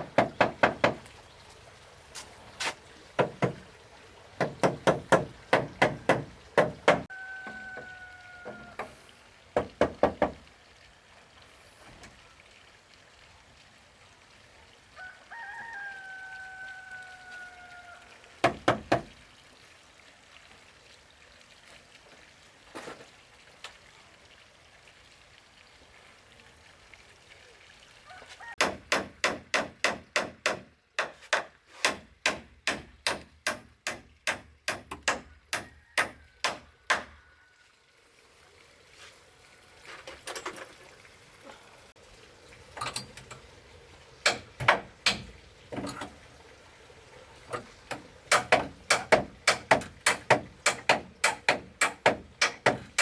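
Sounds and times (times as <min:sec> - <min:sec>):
tool striking wood: 0:00.0 - 0:01.0, 0:04.4 - 0:07.1, 0:18.4 - 0:19.1, 0:28.6 - 0:37.1, 0:44.2 - 0:45.3, 0:47.9 - 0:53.0.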